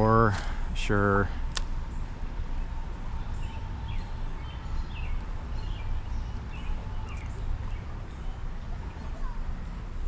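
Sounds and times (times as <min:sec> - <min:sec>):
small bird chirping: 0:03.2 - 0:09.4.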